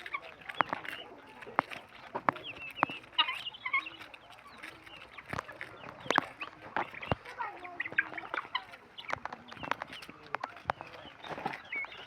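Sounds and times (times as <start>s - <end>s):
guinea fowl clucking: 0.0s - 12.0s
sharp clicks and taps: 0.4s - 3.3s.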